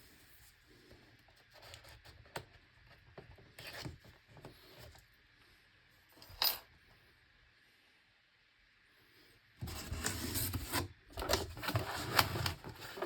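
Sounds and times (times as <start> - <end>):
packaging rustling and scraping: 9.6 - 13.0.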